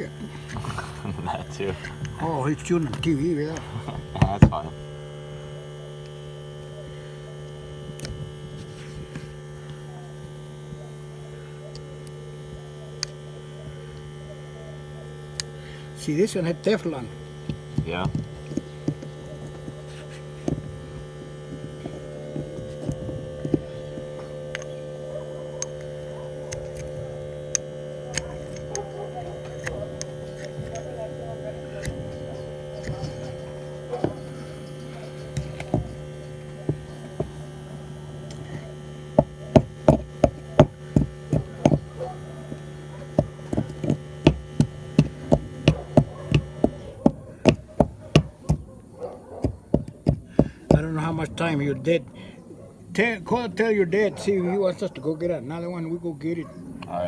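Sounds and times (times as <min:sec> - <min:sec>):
electrical hum: 0:00.0 - 0:57.0
sharp knocks or taps: 0:39.2 - 0:41.9, 0:43.2 - 0:48.7, 0:49.4 - 0:51.0.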